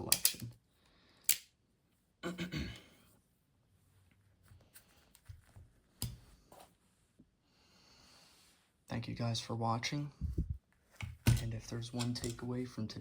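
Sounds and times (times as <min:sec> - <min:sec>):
handling clicks and knocks: 0:11.0 - 0:12.5.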